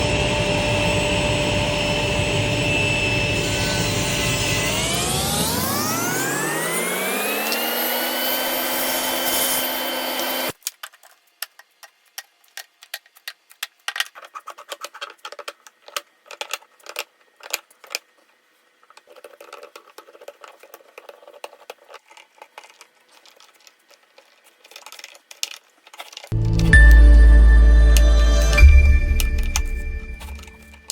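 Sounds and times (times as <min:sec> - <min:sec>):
electric power tool humming: 0:00.0 - 0:10.5.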